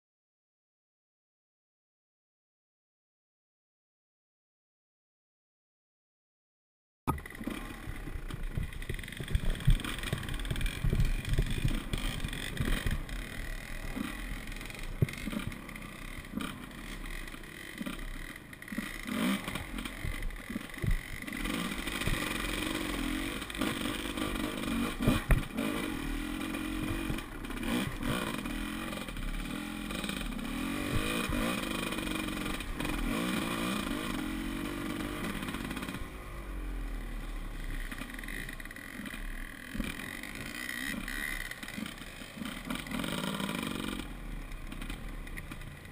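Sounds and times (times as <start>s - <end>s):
dirt bike engine revving: 7.1s - 45.9s
irregular knocks and thumps: 7.9s - 13.1s, 20.0s - 21.3s, 25.0s - 25.6s.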